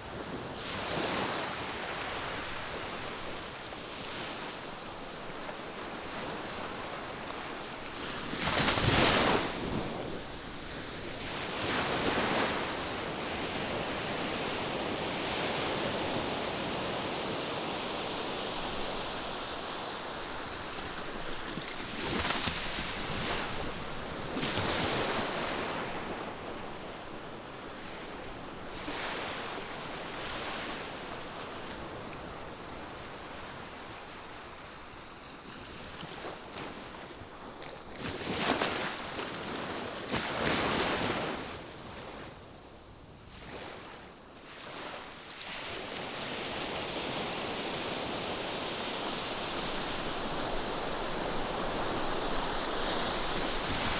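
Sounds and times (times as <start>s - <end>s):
ocean waves washing onto shore: 36.3s - 53.9s.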